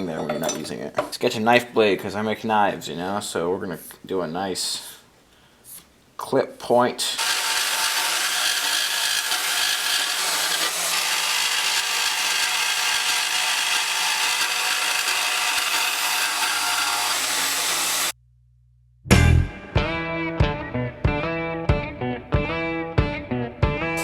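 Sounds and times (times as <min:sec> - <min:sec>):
bandsaw cutting steel: 0:07.2 - 0:18.2.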